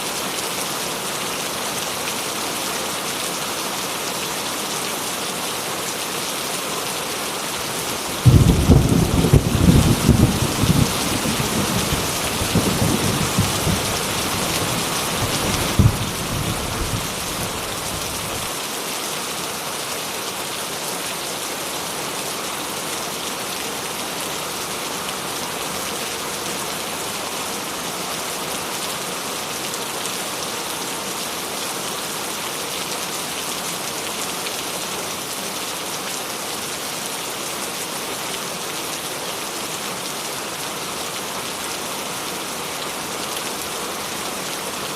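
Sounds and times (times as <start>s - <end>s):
steady rain falling: 0.0s - 44.9s
thunder rumbling and cracking: 8.2s - 18.5s.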